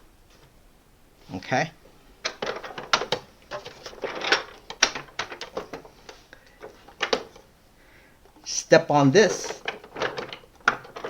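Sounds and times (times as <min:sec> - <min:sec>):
plastic clicks and rattles: 0:02.2 - 0:07.5, 0:09.1 - 0:11.0.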